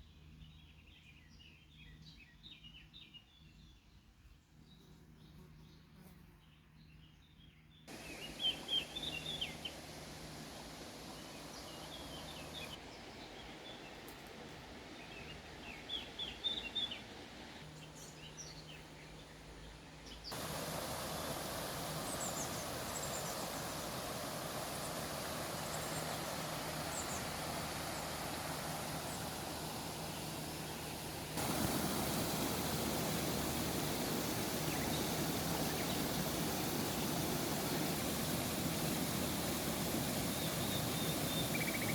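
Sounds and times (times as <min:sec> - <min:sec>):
water rushing: 0:07.9 - 0:17.8, 0:20.3 - 0:41.9
birds chirping: 0:07.9 - 0:41.9.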